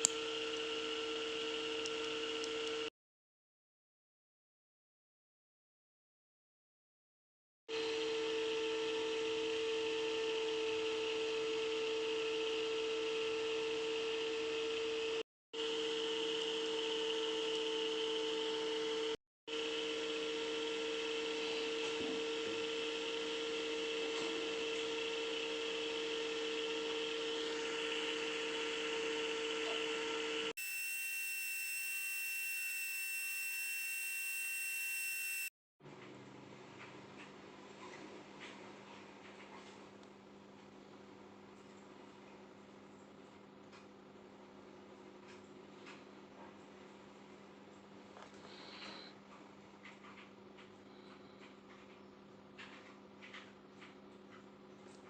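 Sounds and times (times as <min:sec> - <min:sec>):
rotary tool motor whine: 0:00.0 - 0:02.9, 0:07.7 - 0:35.5.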